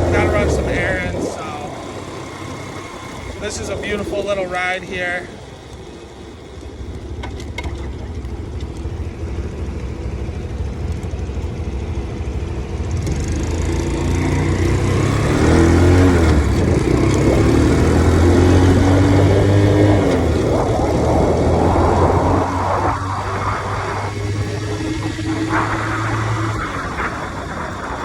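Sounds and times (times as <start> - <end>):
wind noise on microphone: 0.0 - 5.0, 14.9 - 28.0
motorcycle engine revving: 0.0 - 28.0.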